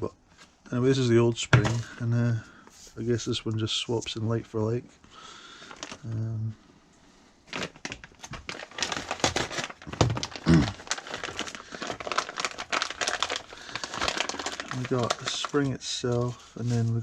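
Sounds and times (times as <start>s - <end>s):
plastic packaging crinkling: 5.5s - 6.4s, 7.5s - 17.0s.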